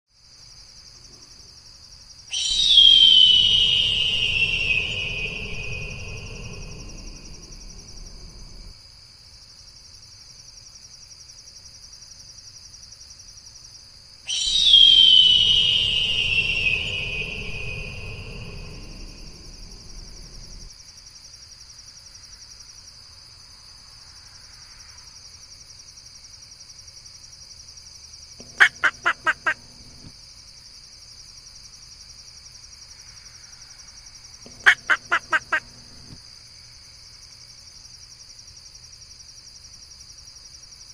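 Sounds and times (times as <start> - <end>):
steady high hiss: 1.6 - 10.3, 14.1 - 40.9
rapid bird calls: 2.3 - 8.6, 14.3 - 20.7, 28.4 - 30.1, 34.5 - 36.1
bird screaming: 2.3 - 8.7, 14.3 - 20.7, 28.4 - 30.0, 34.5 - 36.1.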